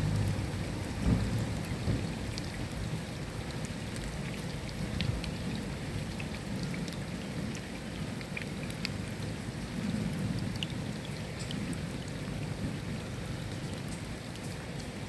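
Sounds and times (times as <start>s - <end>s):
distant thunder rumble: 0.0s - 2.2s
raindrops ticking: 0.0s - 15.0s
steady rainfall: 0.0s - 15.0s.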